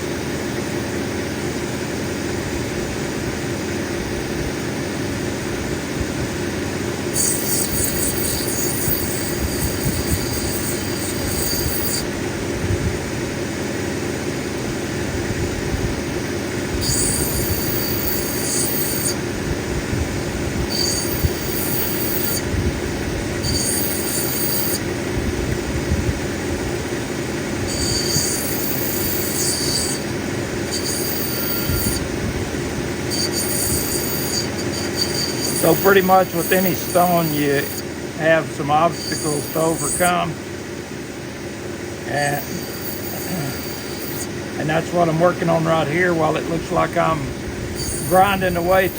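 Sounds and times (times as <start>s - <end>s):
grinding wheel running: 0.0s - 48.9s
high-pitched grinding squeal: 7.1s - 12.2s, 16.8s - 19.4s, 20.5s - 22.6s, 23.3s - 25.0s, 27.6s - 40.4s, 42.0s - 48.9s.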